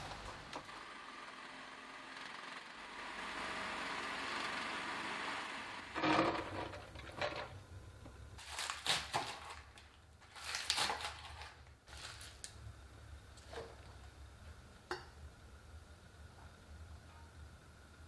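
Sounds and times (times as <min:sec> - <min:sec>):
plastic packaging rustling: 0:08.4 - 0:12.6.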